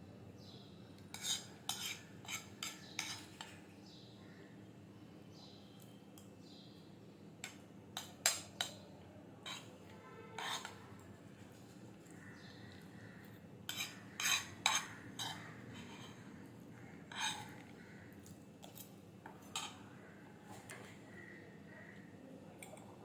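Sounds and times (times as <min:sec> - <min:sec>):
spoon clinking against a dish: 0:01.1 - 0:03.6, 0:07.4 - 0:08.8, 0:09.4 - 0:11.0, 0:13.7 - 0:16.2, 0:17.1 - 0:17.7, 0:18.6 - 0:19.8.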